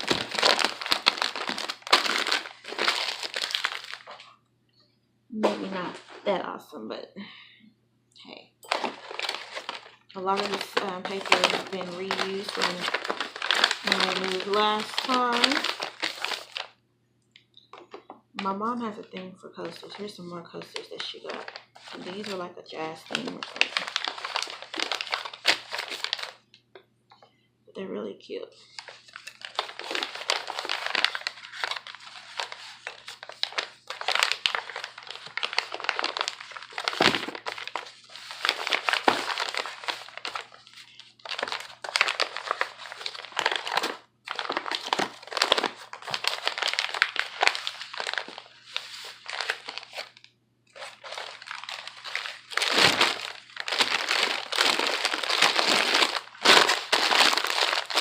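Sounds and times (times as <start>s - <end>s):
packing paper crumpling: 0.0s - 4.4s, 8.6s - 16.8s, 19.6s - 26.5s, 28.6s - 58.0s.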